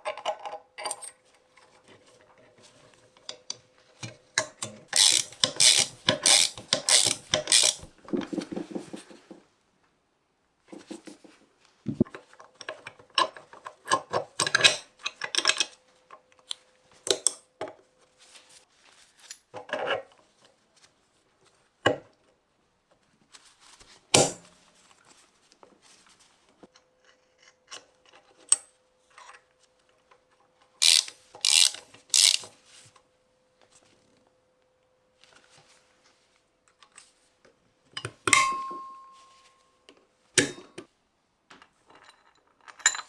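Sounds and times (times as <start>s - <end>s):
tools clicking and knocking on metal: 3.3s - 7.9s, 30.8s - 32.5s.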